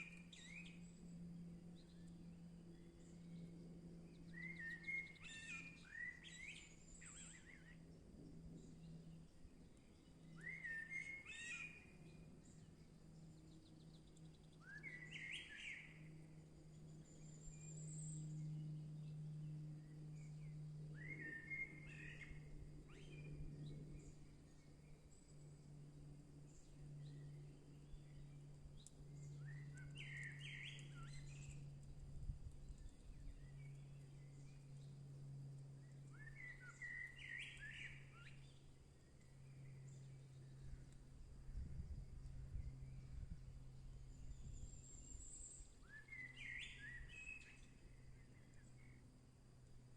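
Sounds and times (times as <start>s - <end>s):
faint low hum: 0.0s - 49.9s
songbird singing: 0.0s - 49.9s
thin bird chirps: 9.8s - 16.2s, 26.5s - 31.8s.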